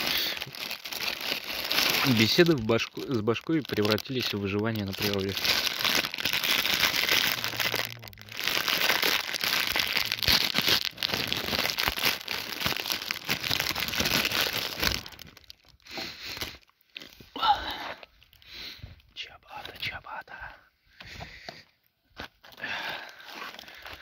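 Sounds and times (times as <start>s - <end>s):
plastic packaging crinkling: 0.0s - 17.2s, 22.2s - 24.0s.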